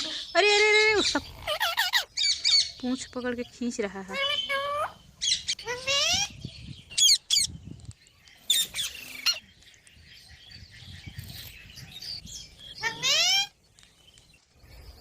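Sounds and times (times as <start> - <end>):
parrots screeching: 0.5 - 2.8, 4.1 - 6.3, 12.8 - 13.5.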